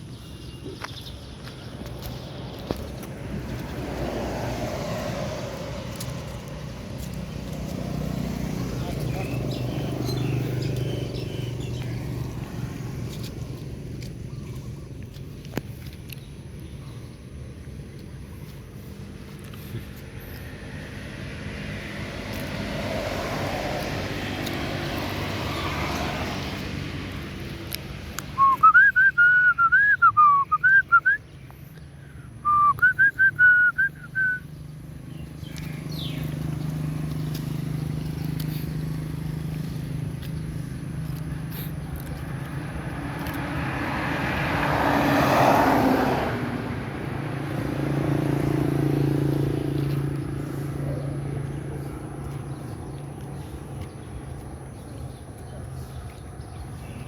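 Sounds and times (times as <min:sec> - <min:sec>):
passing vehicles: 0:00.0 - 0:57.0
high warbling whistle-like calls: 0:28.4 - 0:31.2, 0:32.5 - 0:34.4.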